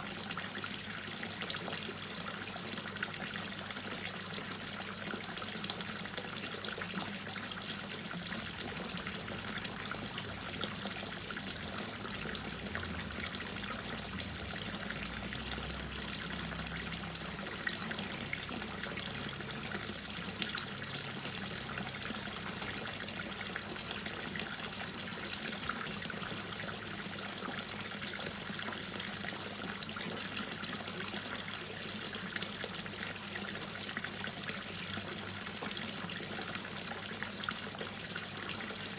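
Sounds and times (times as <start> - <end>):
water dripping and trickling: 0.0 - 38.9.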